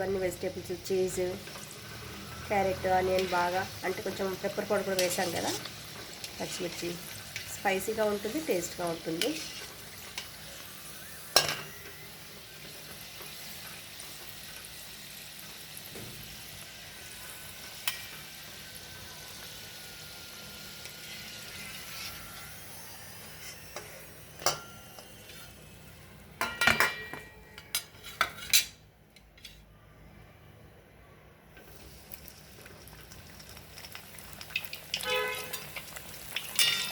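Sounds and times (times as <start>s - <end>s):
food sizzling in hot oil: 0.0s - 27.0s, 31.6s - 36.9s
utensil clinking against pan: 36.6s - 36.9s.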